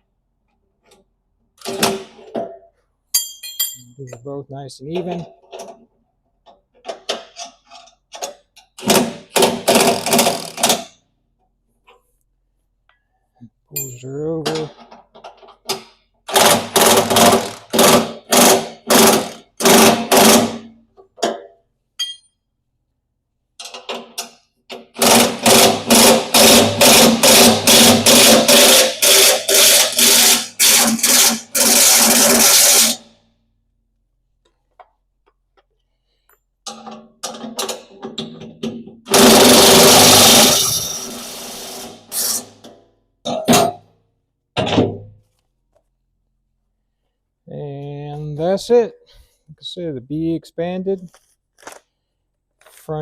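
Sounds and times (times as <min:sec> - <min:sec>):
impact wrench bursts: 0:08.8 - 0:10.9, 0:16.3 - 0:20.7, 0:24.8 - 0:33.0, 0:39.1 - 0:42.6.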